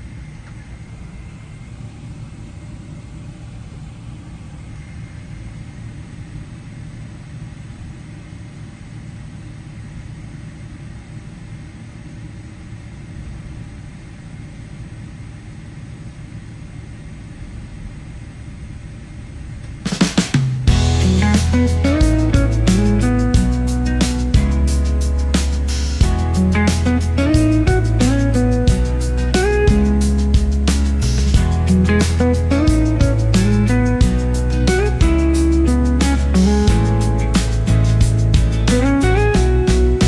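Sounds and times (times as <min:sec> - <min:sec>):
jet engines rumbling: 0:19.9 - 0:40.0
guitar music: 0:20.7 - 0:40.0.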